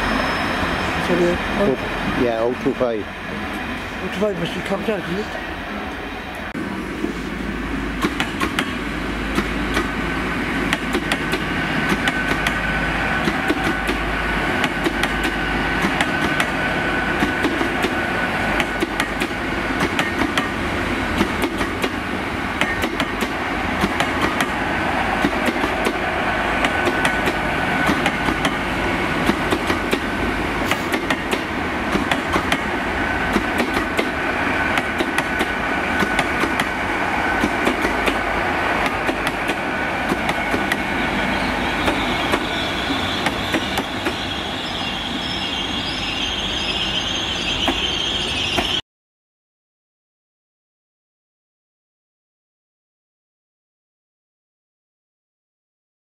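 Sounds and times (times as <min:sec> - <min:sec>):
train carriages rumbling: 0:00.0 - 0:48.8
train wheel clicks: 0:08.0 - 0:09.9, 0:10.7 - 0:12.6, 0:13.2 - 0:14.0, 0:14.6 - 0:16.6, 0:18.6 - 0:20.5, 0:26.6 - 0:28.6, 0:29.2 - 0:32.7, 0:33.3 - 0:36.8.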